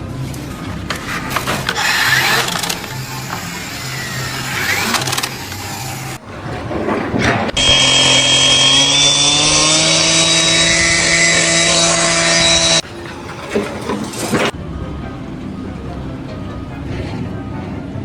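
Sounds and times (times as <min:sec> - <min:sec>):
power tool motor running: 0:00.2 - 0:06.2, 0:07.6 - 0:14.5.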